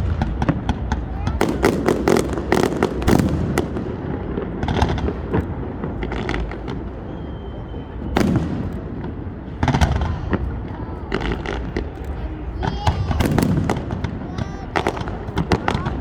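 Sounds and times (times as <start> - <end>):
fireworks bangs and crackles: 0.0 - 16.0
high whistle: 6.9 - 8.7.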